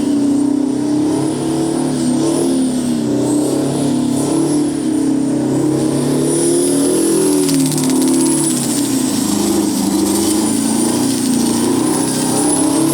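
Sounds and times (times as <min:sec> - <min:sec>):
diesel engine at high revs: 0:00.0 - 0:12.9
supercharger and turbo whine: 0:00.0 - 0:12.9
rapid crackle: 0:06.6 - 0:12.9.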